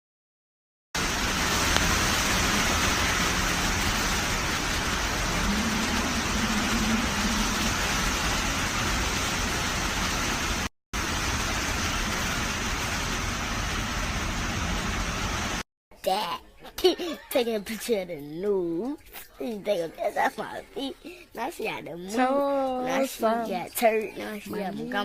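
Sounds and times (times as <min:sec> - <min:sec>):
rain and wind hissing: 0:01.0 - 0:15.6.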